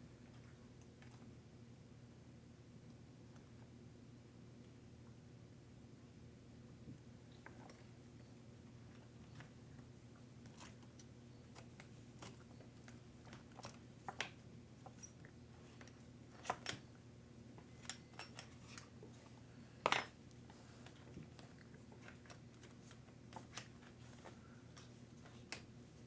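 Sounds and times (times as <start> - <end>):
tools clicking and tapping: 17.7 - 18.9.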